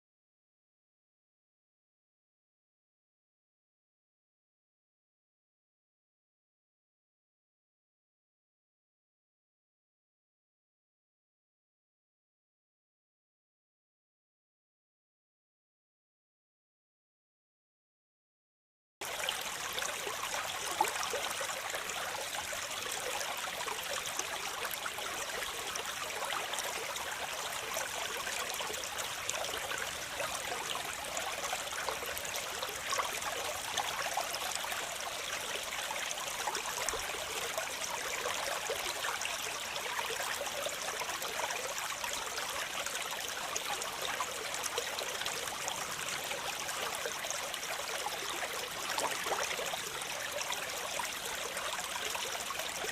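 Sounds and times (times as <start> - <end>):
waterfall: 19.0 - 52.9.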